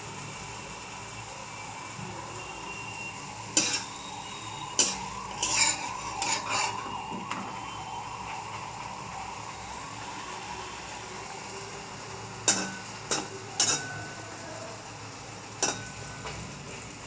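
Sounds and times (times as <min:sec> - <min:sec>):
food sizzling in oil: 0:00.0 - 0:17.0
metal spatula scraping frying pan: 0:03.5 - 0:04.1, 0:04.8 - 0:07.0, 0:12.5 - 0:14.2, 0:15.6 - 0:16.1.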